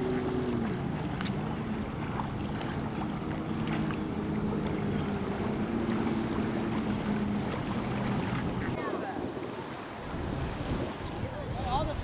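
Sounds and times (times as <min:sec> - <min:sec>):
boat motor running: 0:00.0 - 0:08.8
wind on microphone: 0:00.0 - 0:12.0.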